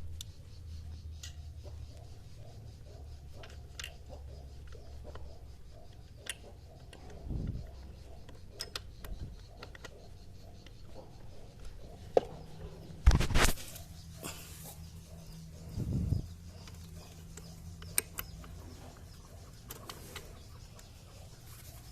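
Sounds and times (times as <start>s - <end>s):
tools and parts clicking: 3.2s - 11.0s, 16.4s - 20.9s.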